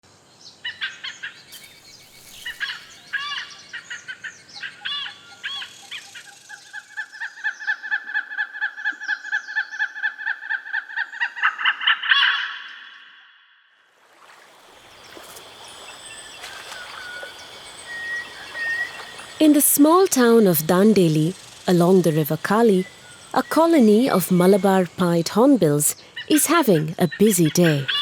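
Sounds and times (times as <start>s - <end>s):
birds chirping: 1.6s - 6.7s, 14.7s - 28.0s
fast repeated bird call notes: 17.0s - 28.0s.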